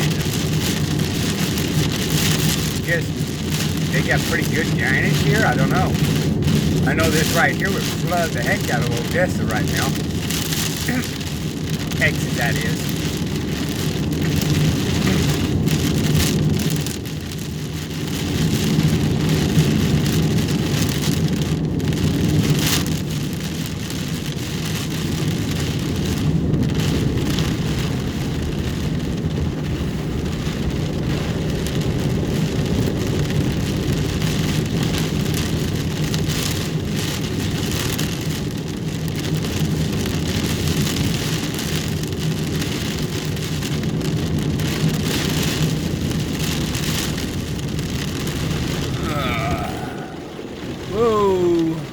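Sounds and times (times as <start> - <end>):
vehicle moving hum: 0.0 - 23.2
heavy rain on vehicle roof: 0.0 - 51.9.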